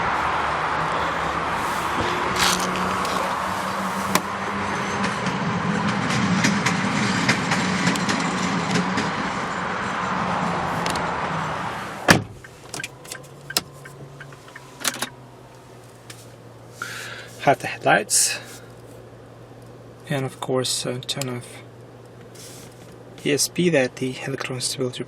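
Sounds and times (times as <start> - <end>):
steady outside noise: 0.0 - 25.0
car door slamming: 1.6 - 4.3, 12.0 - 13.7.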